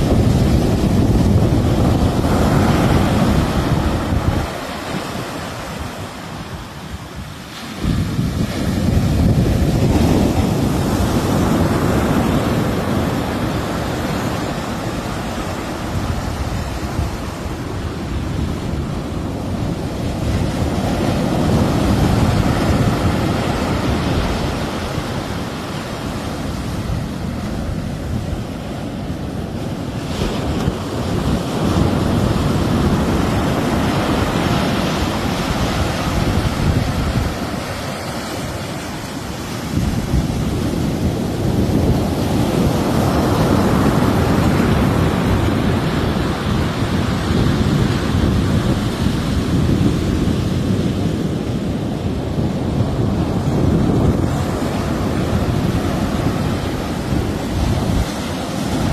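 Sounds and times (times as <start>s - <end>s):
sea waves washing onto shore: 0.0s - 58.9s
wind rumbling on microphone: 0.0s - 58.9s.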